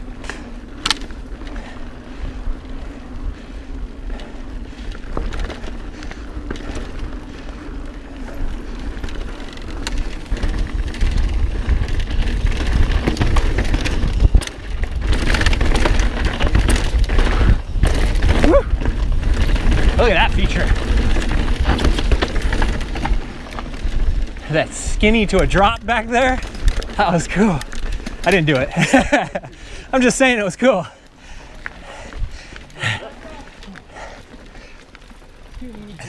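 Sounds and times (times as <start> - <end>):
bike rattling: 0.0 - 36.0
bike tyres on dirt: 0.0 - 36.0
wind rumble on microphone: 1.3 - 27.1.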